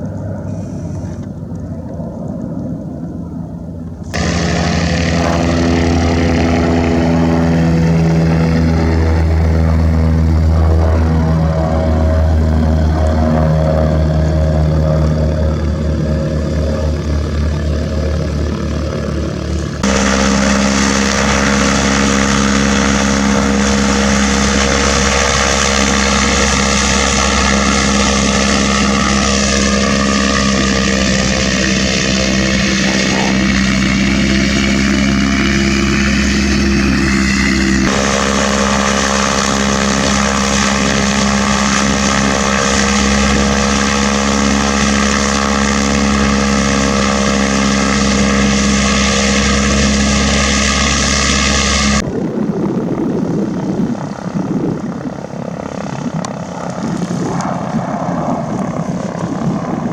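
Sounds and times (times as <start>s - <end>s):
propeller airplane engine droning: 0.0s - 59.9s.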